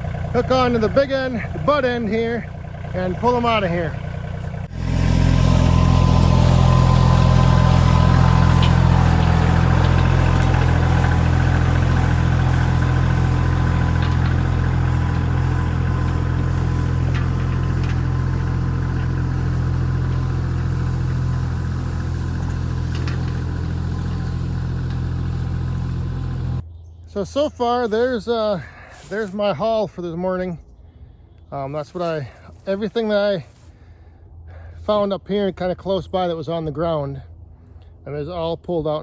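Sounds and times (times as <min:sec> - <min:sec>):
tractor diesel engine under load: 0:00.0 - 0:26.6.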